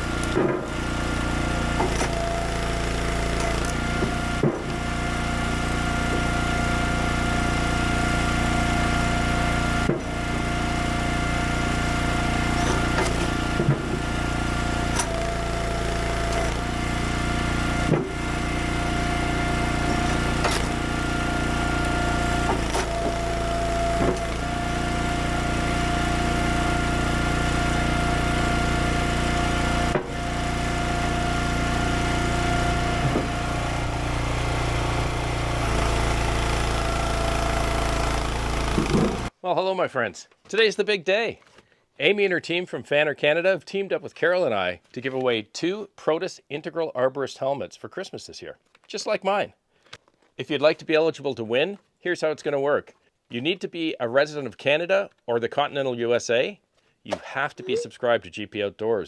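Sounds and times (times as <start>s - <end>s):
small gasoline engine running: 0.0s - 39.3s
firewood knocking: 33.0s - 33.4s.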